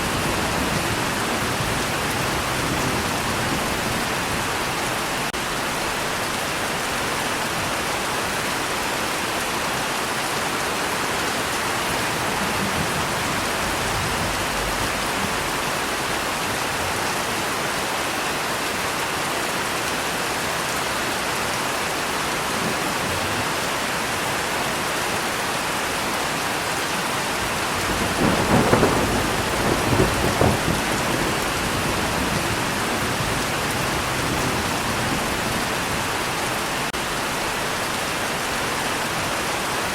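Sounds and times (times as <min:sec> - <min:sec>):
thunder rumbling: 0:00.0 - 0:05.3, 0:11.6 - 0:17.2, 0:27.4 - 0:36.9
rain falling: 0:00.0 - 0:39.9.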